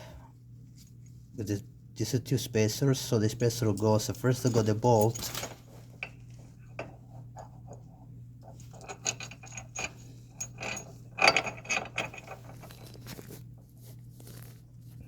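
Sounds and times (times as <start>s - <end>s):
metal bolts clicking and clattering: 8.5s - 12.8s.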